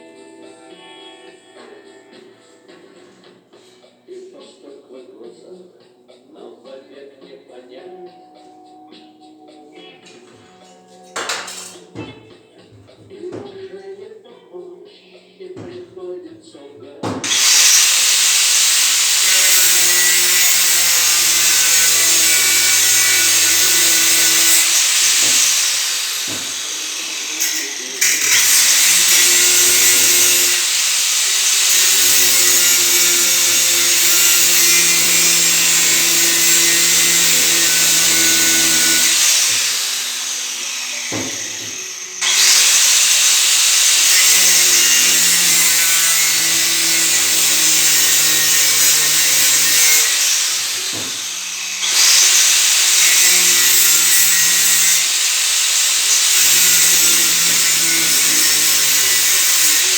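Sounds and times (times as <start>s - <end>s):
power tool grinding: 17.2s - 59.9s.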